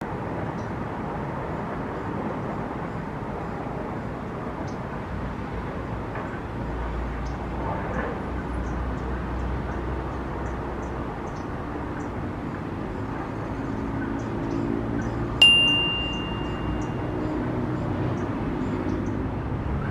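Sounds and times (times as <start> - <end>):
faint high bird chirps: 15.0 - 17.5.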